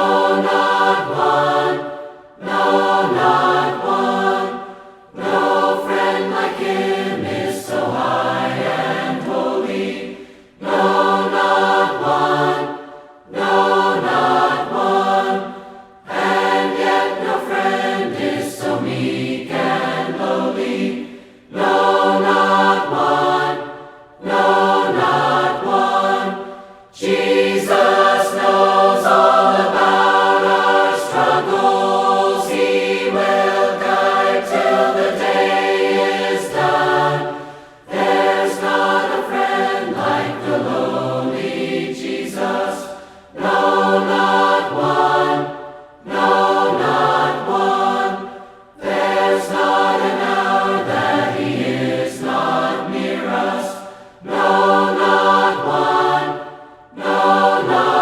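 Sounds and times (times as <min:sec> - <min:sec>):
congregation singing a hymn: 0:00.0 - 0:58.0.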